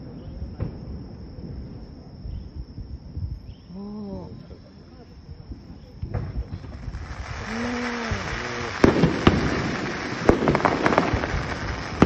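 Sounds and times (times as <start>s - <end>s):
crackling firework pops: 0.5s - 0.9s, 6.0s - 12.0s
firework bangs: 6.0s - 12.0s.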